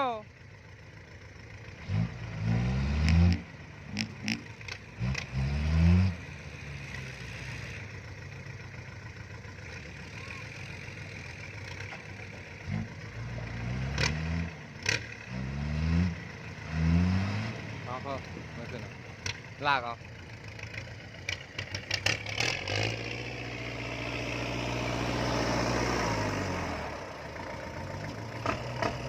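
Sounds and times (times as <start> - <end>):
tractor engine revving: 0.9 - 29.0.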